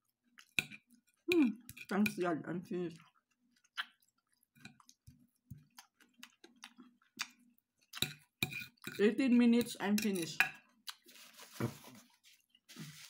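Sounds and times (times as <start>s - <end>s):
faint chewing: 0.0s - 2.0s, 2.9s - 9.0s, 10.6s - 12.8s.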